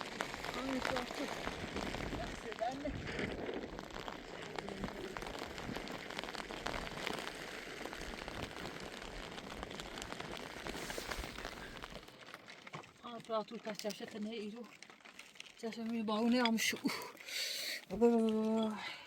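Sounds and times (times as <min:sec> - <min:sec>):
steady rain on a surface: 0:00.0 - 0:15.3, 0:16.0 - 0:19.0.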